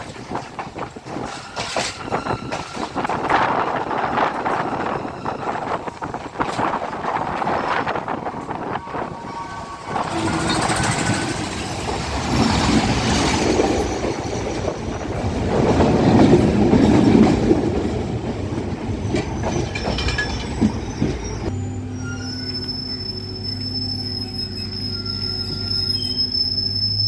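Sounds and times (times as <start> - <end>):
train running on rails: 0.0 - 27.0
high-pitched wheel squeal: 7.2 - 14.1, 19.4 - 27.0.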